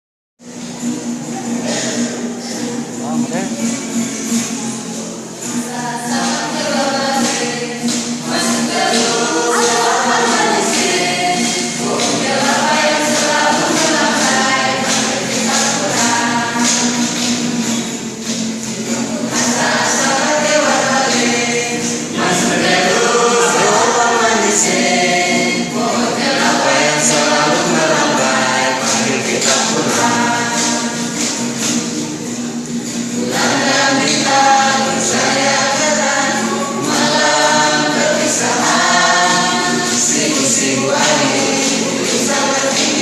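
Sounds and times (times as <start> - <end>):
group singing in chorus: 0.4 - 43.0
steady percussion beat: 0.4 - 43.0.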